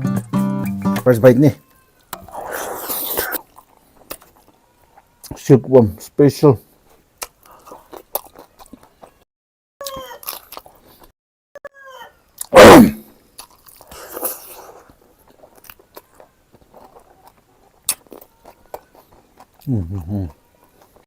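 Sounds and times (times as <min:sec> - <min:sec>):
person chewing food: 0:02.0 - 0:05.4, 0:06.7 - 0:11.1, 0:12.3 - 0:21.0
loud vocal burst like sneeze: 0:02.3 - 0:03.4, 0:12.5 - 0:13.1.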